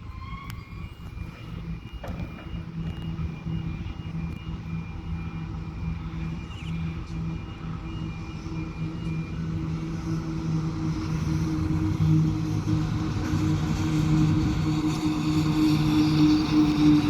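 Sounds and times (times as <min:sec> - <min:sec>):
diesel locomotive engines droning: 0:00.0 - 0:17.0
faint high whine: 0:00.0 - 0:17.0.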